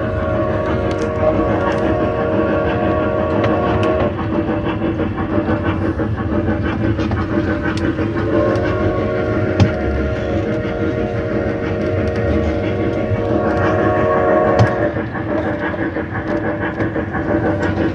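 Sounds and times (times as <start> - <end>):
tour train humming and rumbling: 0.0 - 17.9.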